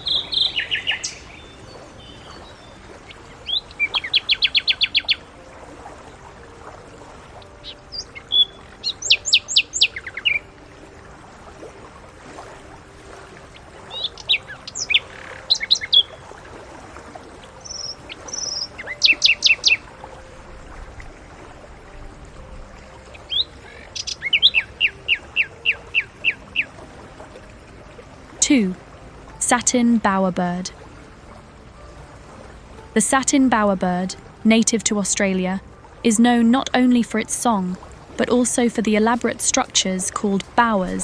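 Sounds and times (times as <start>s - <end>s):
nightingale singing trills: 0.0s - 6.2s, 7.0s - 11.1s, 13.5s - 16.4s, 17.4s - 26.7s.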